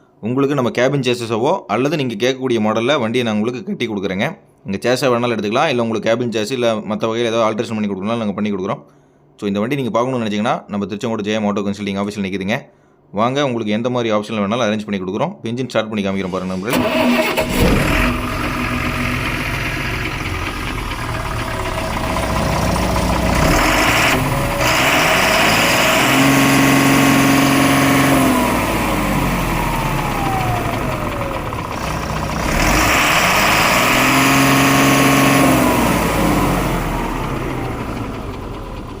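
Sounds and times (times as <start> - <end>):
diesel truck engine idling and revving: 16.3 - 39.0.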